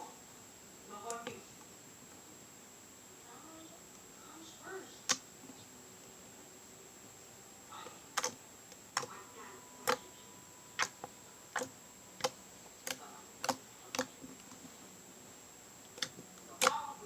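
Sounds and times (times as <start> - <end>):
slime clicking pops: 10.8 - 14.1.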